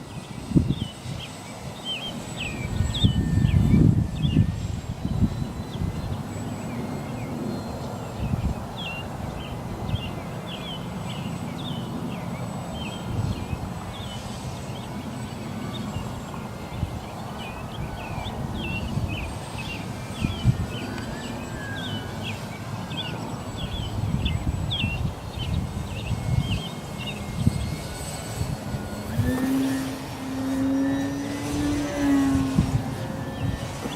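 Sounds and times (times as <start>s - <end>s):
wind buffeting microphone: 0.0s - 11.0s, 12.7s - 15.0s, 15.8s - 33.9s
faint whine: 0.0s - 33.9s
small birds chirping: 0.0s - 33.9s.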